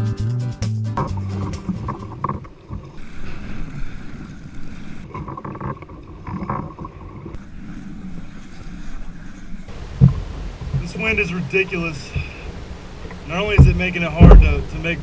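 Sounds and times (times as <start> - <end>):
water sloshing around kayak: 1.0 - 15.0
wind gusting over microphone: 9.7 - 15.0.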